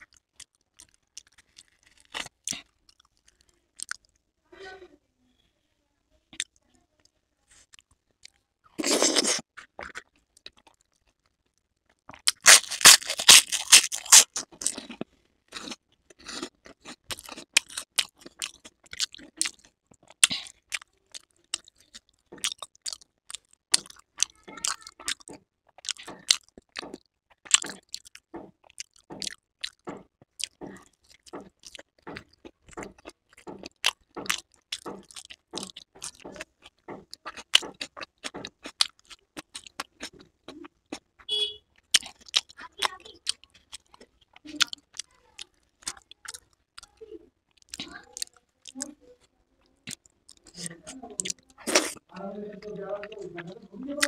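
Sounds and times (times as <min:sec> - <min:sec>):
crunchy chewing clicks: 0:00.0 - 0:04.1, 0:07.7 - 0:49.0, 0:49.7 - 0:53.5
crunching crisp fried food: 0:00.0 - 0:04.2, 0:07.5 - 0:49.0, 0:49.7 - 0:53.5.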